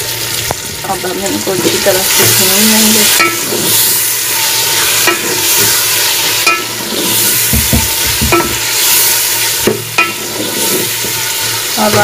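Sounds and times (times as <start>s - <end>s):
vegetables sizzling in hot oil: 0.0s - 12.0s
spoon scraping and knocking pot: 3.1s - 3.9s, 4.5s - 12.0s.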